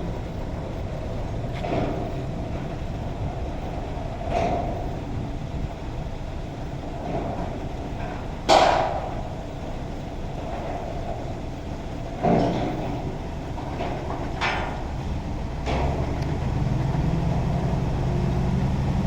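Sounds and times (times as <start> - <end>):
truck engine running: 12.8 - 19.0.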